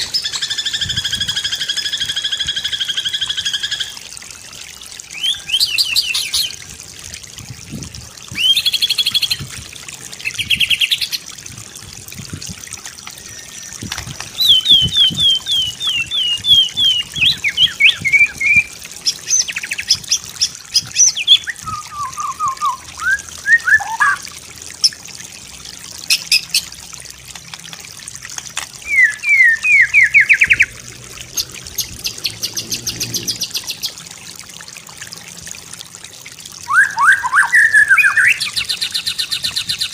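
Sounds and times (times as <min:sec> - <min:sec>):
water trickling: 0:00.0 - 0:39.9
songbird singing: 0:05.1 - 0:06.6, 0:13.2 - 0:24.2, 0:28.8 - 0:34.0, 0:36.7 - 0:39.9.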